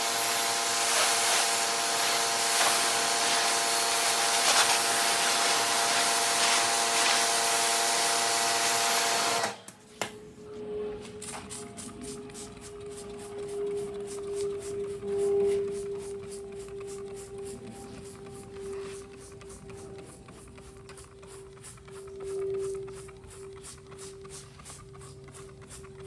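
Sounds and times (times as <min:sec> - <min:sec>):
pressure washer water jet hiss: 0:00.0 - 0:09.4.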